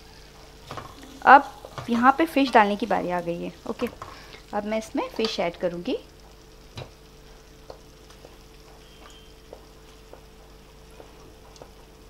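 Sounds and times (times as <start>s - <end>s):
sauce sizzling: 0.0s - 12.0s.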